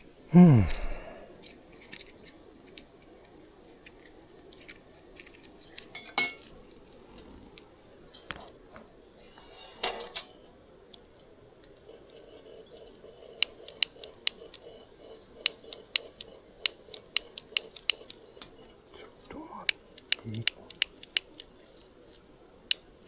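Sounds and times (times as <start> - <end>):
cutlery and dishes clinking: 5.8 - 6.6, 9.6 - 10.3.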